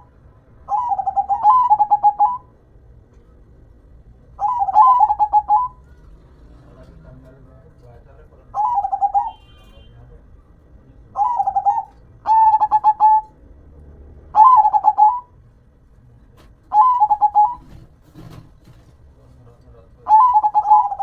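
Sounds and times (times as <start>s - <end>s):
dove cooing: 0.0s - 2.6s, 4.3s - 6.6s, 8.5s - 9.5s, 11.1s - 13.4s, 14.3s - 15.4s, 16.7s - 18.4s, 20.0s - 21.0s.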